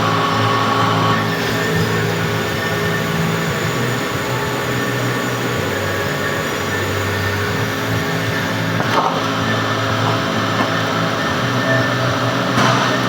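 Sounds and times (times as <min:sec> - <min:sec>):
metal lathe running: 0:00.0 - 0:13.0.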